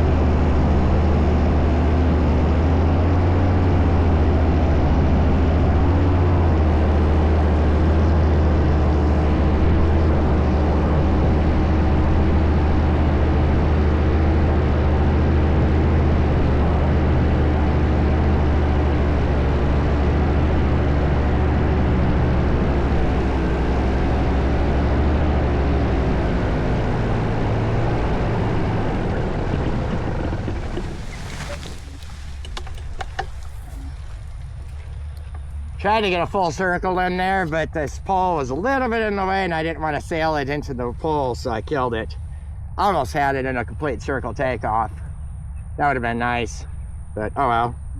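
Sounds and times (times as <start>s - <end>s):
paramotor engine and propeller: 0.0s - 47.9s.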